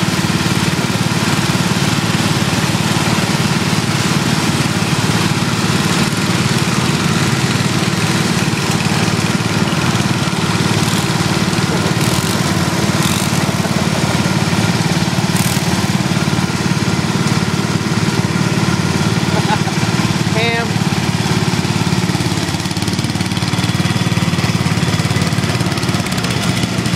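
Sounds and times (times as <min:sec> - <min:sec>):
lawn tractor engine running: 0:00.0 - 0:26.9.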